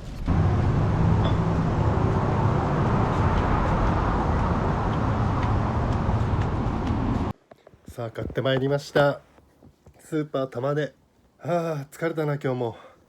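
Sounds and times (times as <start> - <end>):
vehicle engine hum: 0.0 - 7.4
road traffic noise: 0.3 - 7.4.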